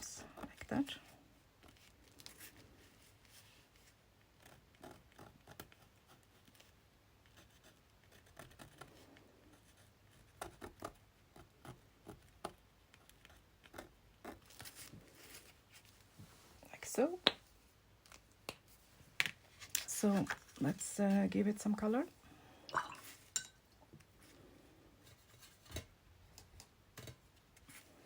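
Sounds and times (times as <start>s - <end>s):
scratching on paper: 1.6s - 15.9s.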